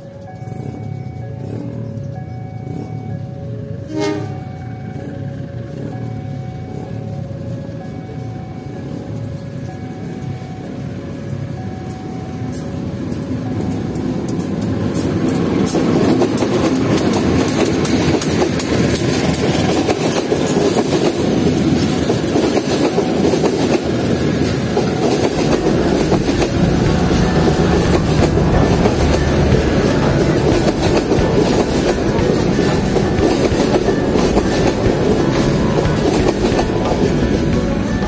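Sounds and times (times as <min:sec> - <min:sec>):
diesel train passing: 0:00.0 - 0:38.0
wheels clicking over rail joints: 0:12.6 - 0:38.0.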